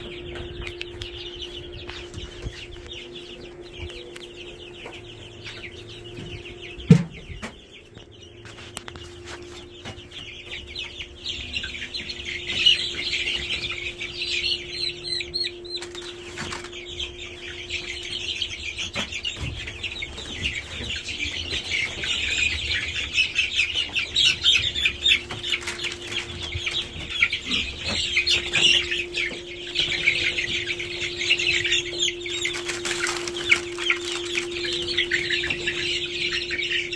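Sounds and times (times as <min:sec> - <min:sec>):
chicks peeping: 0:00.0 - 0:36.9
steady low hum: 0:00.0 - 0:36.9
wings fluttering: 0:24.0 - 0:36.0.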